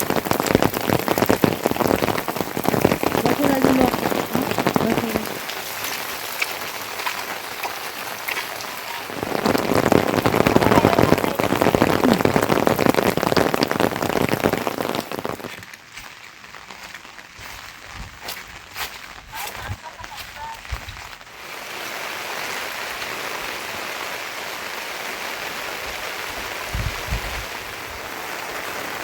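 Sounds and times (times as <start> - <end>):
heavy rain pattering: 0.0 - 29.0.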